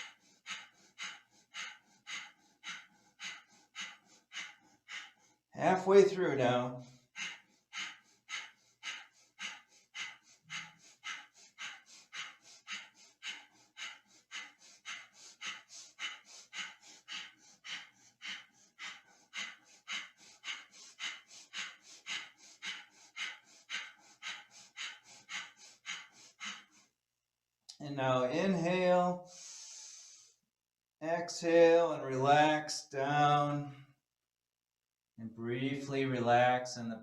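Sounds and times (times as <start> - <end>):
rapid forceful breaths through nose: 0.0 - 5.5, 6.8 - 26.9, 29.2 - 30.4.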